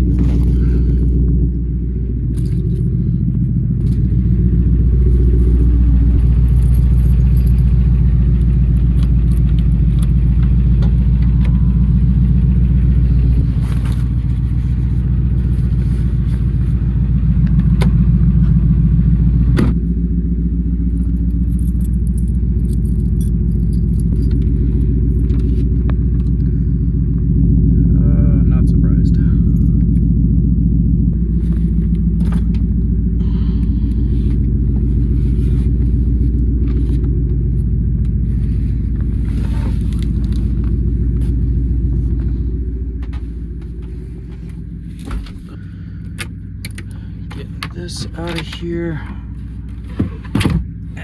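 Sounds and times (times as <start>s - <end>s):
truck engine and road rumble: 0.0s - 51.0s
light clicks and rattles: 43.5s - 49.2s.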